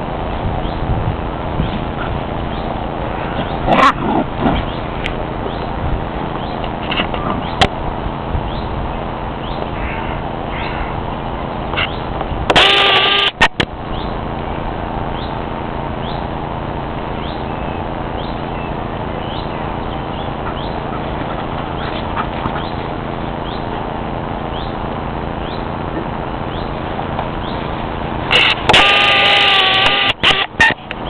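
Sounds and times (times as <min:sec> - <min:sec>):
loud steady bird call: 0:01.6 - 0:05.8, 0:08.4 - 0:14.2, 0:17.0 - 0:23.8, 0:24.4 - 0:25.8, 0:27.4 - 0:27.7
small bird chirping: 0:16.0 - 0:16.3, 0:17.1 - 0:21.1, 0:21.7 - 0:23.7, 0:25.4 - 0:25.7, 0:26.5 - 0:26.8, 0:27.4 - 0:27.7.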